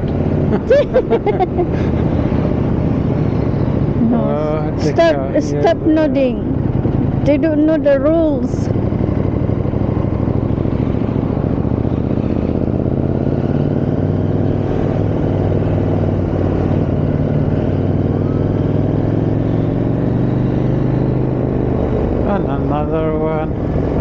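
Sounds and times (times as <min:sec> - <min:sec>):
motorcycle engine running: 0:00.0 - 0:24.0
road noise: 0:00.0 - 0:24.0.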